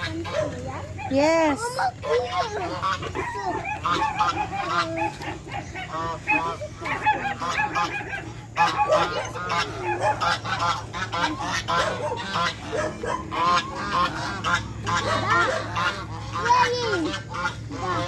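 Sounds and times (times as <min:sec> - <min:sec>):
geese honking: 0:00.0 - 0:18.0
steady low hum: 0:00.0 - 0:18.0.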